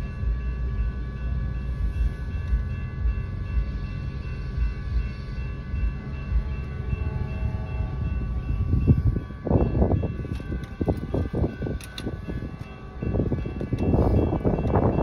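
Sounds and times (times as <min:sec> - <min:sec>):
freight train wagons rumbling: 0:00.0 - 0:15.0.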